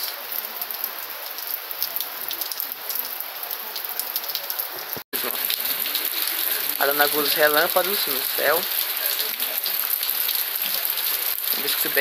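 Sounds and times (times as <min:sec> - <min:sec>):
rain falling: 0:00.0 - 0:12.0
raindrops ticking: 0:03.7 - 0:12.0.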